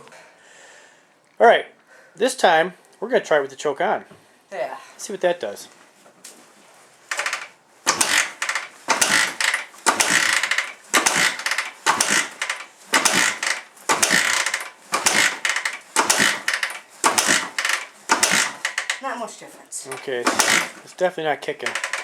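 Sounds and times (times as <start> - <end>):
motorcycle engine kick-started: 7.1 - 19.1, 19.9 - 20.9, 21.6 - 22.0.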